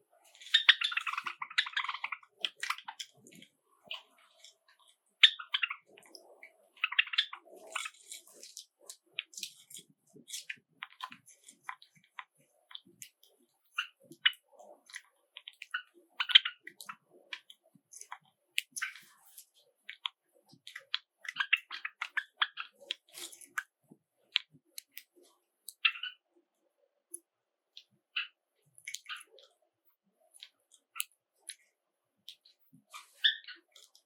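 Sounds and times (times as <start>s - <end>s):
sparrows chirping: 0.4s - 3.2s, 5.2s - 8.4s, 33.0s - 33.9s
small sharp clicks and taps: 7.9s - 26.1s, 27.1s - 29.5s.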